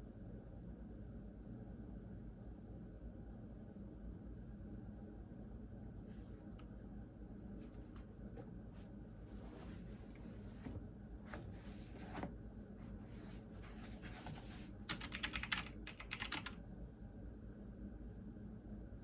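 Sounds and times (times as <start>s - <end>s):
computer keyboard typing: 14.9s - 16.6s.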